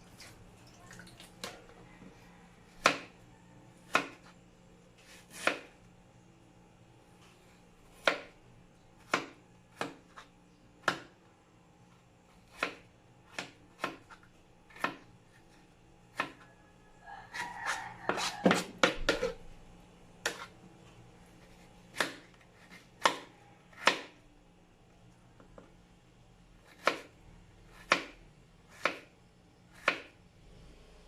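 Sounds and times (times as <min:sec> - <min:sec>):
knife chopping on cutting board: 0:02.7 - 0:03.1, 0:03.9 - 0:04.3, 0:05.0 - 0:05.7, 0:07.9 - 0:08.3, 0:09.0 - 0:11.2, 0:12.4 - 0:15.0, 0:16.1 - 0:16.4, 0:17.4 - 0:19.4, 0:20.2 - 0:20.5, 0:21.4 - 0:24.2, 0:26.6 - 0:27.1, 0:27.7 - 0:29.1, 0:29.7 - 0:30.1.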